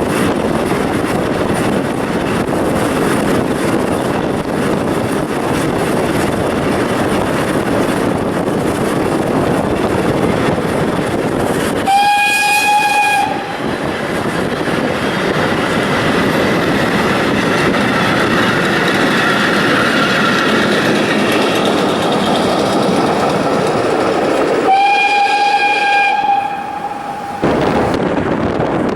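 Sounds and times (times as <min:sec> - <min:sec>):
train wheels clattering on rails: 0:00.0 - 0:28.9
steam locomotive whistle: 0:11.8 - 0:13.7, 0:24.7 - 0:27.8.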